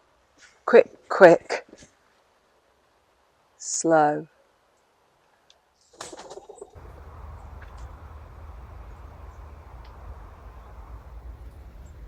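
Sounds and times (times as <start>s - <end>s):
wind buffeting microphone: 6.8s - 12.0s.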